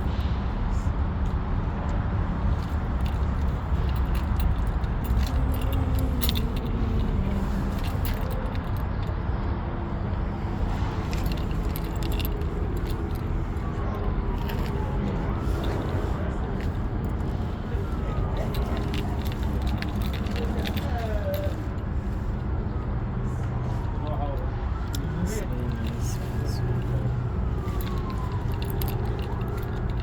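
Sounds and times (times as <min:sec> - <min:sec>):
steady low rumble: 0:00.0 - 0:30.0
metallic jingles: 0:02.6 - 0:09.0, 0:10.9 - 0:22.1, 0:25.0 - 0:30.0.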